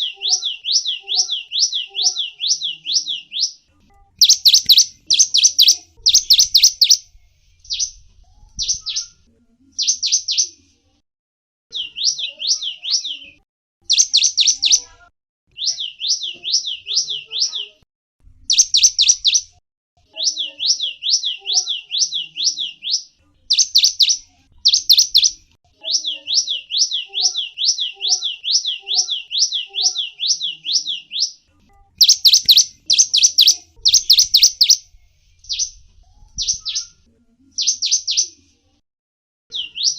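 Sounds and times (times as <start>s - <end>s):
songbird high chirps: 0.0s - 3.6s, 4.2s - 8.0s, 8.6s - 9.2s, 9.8s - 10.6s, 11.7s - 14.9s, 15.5s - 17.8s, 18.5s - 19.5s, 20.1s - 31.4s, 32.0s - 35.8s, 36.4s - 37.0s, 37.6s - 38.4s, 39.5s - 39.9s.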